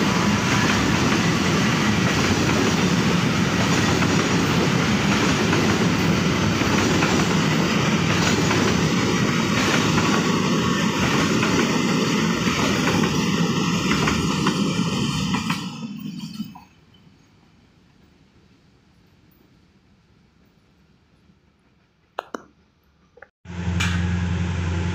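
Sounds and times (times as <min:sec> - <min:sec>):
train wheels rolling on rails: 0:00.0 - 0:19.6.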